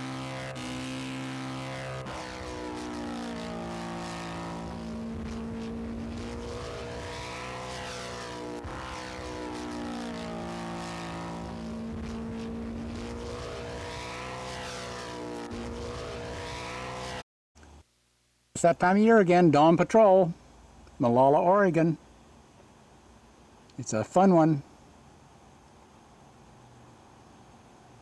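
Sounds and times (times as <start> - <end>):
model aircraft engines flying past: 0.0 - 17.2.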